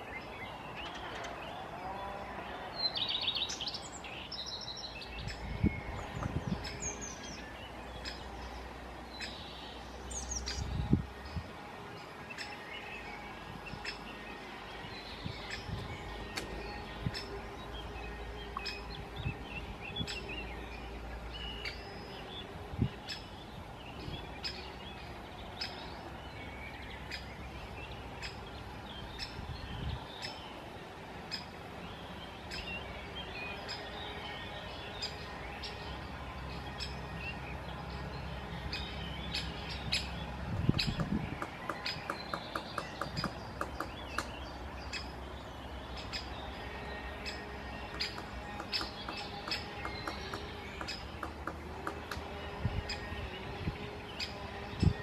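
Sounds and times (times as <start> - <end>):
birds chirping faintly: 0.0 - 55.0
woodpecker tapping: 40.6 - 44.4, 47.9 - 52.3.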